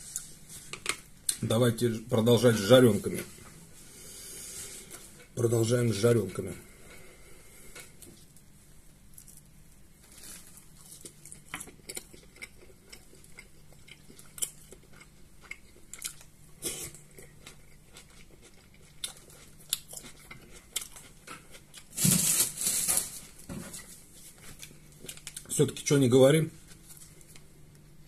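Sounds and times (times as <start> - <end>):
chewing pastries: 6.3 - 25.9.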